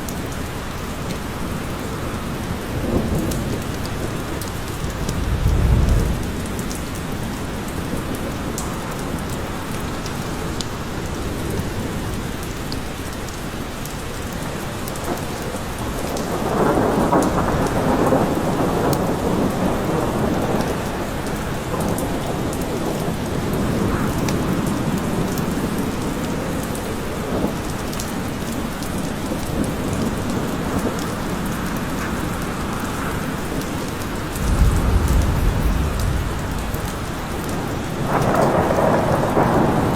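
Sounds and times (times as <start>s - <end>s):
heavy rain in a forest: 0.0s - 39.9s
thunder rolling: 4.8s - 6.7s, 34.3s - 39.9s.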